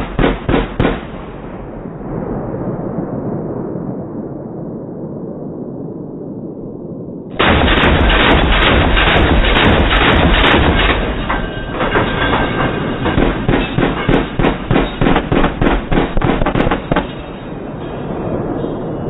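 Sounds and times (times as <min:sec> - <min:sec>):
machine gun firing: 0:00.0 - 0:01.2, 0:07.4 - 0:17.4
rumbling gunfire tail: 0:00.0 - 0:04.5, 0:07.3 - 0:18.8.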